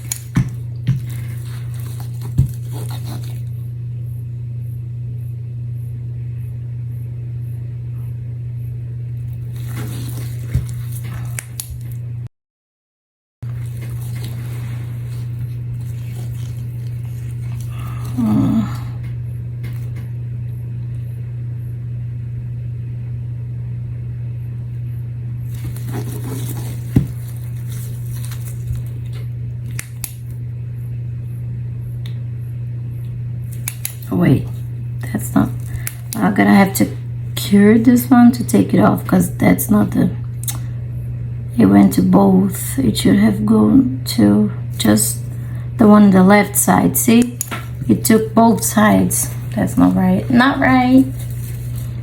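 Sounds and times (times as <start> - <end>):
steady low hum: 0.0 - 12.3, 13.4 - 52.0
faint rustling: 47.3 - 52.0.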